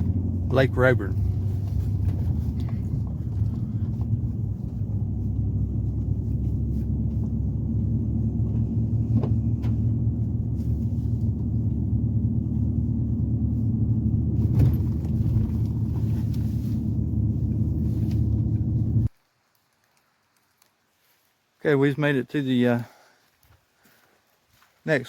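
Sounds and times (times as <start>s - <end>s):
faint rattles: 0.0s - 19.1s
truck engine and tyre rumble: 0.0s - 19.1s
truck bump: 14.2s - 16.5s.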